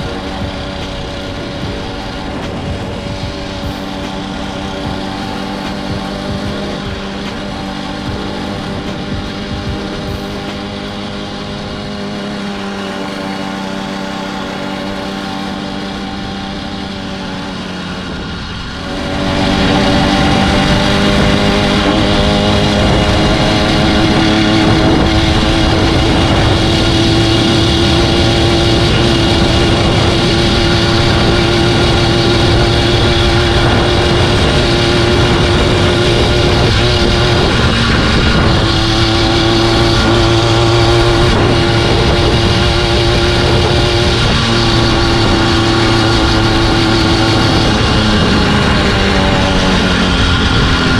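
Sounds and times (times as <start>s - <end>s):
two-stroke engine revving: 0.0s - 50.9s.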